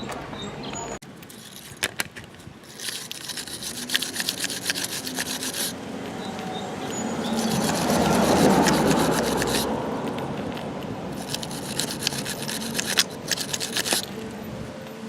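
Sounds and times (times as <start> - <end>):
hand tool scraping: 1.2 - 5.8, 6.9 - 14.2.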